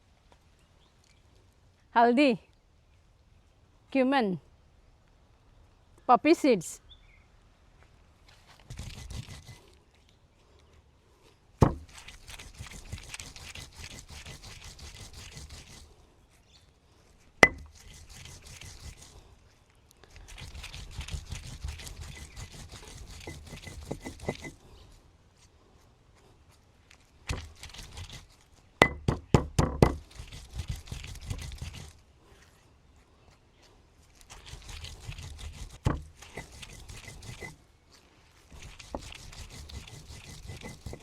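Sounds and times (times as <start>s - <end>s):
stone scraping on stone: 8.7s - 9.7s, 11.6s - 15.9s, 17.4s - 19.2s, 20.2s - 24.8s, 27.3s - 32.0s, 34.2s - 37.6s, 38.5s - 41.0s
stone knocking on stone: 11.6s - 11.9s, 17.4s - 17.6s, 23.6s - 24.5s, 28.8s - 30.0s, 35.8s - 36.5s.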